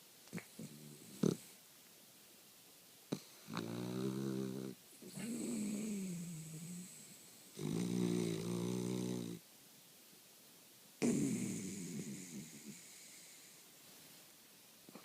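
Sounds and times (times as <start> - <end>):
dog snoring: 0.4 - 1.6, 3.1 - 9.4, 11.0 - 13.6.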